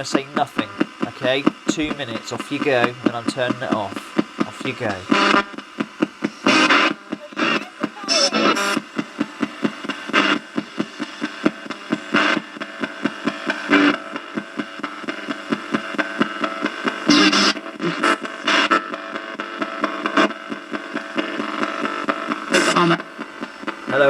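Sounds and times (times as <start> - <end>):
broadcast sound fragments: 0.0 - 5.2
radio static stuttering: 0.0 - 24.0.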